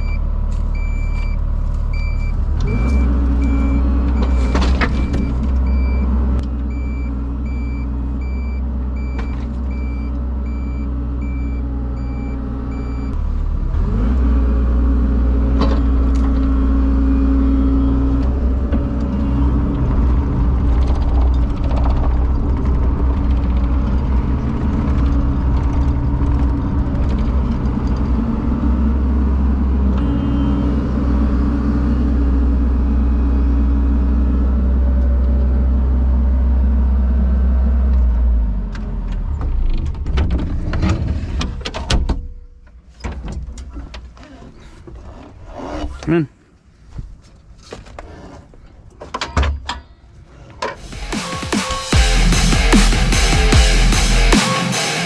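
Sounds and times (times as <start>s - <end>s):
backup alarm beeping: 0.0s - 6.1s, 6.7s - 13.2s
heavy equipment engine revving: 0.0s - 40.7s, 50.8s - 55.0s.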